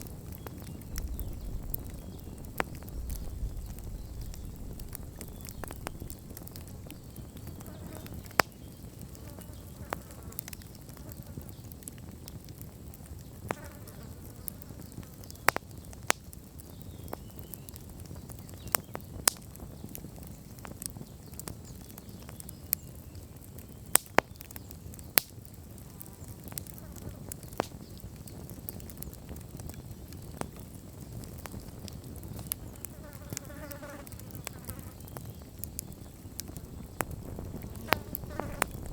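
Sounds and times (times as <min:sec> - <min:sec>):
low rumble of flames: 0:00.0 - 0:09.7, 0:10.4 - 0:13.6, 0:14.2 - 0:33.4, 0:34.0 - 0:38.9
fire crackling and popping: 0:00.0 - 0:38.9
faint wavering buzzes: 0:36.0 - 0:38.9.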